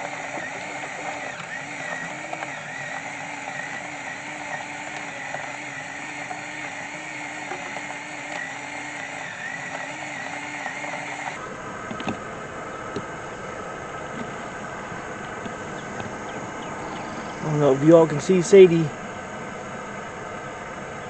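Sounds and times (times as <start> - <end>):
droning hum: 0.0 - 21.0
constant hiss: 9.7 - 21.0.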